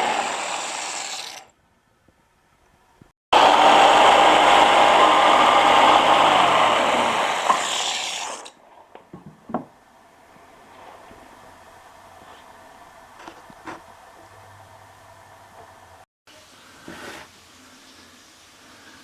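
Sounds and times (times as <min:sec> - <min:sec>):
electric power tool whining: 0:00.0 - 0:01.5, 0:03.4 - 0:08.5.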